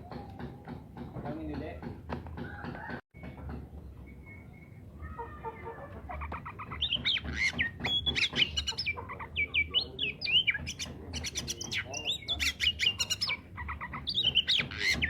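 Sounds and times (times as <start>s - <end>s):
bird singing whistled notes: 3.8s - 5.1s, 6.8s - 15.0s.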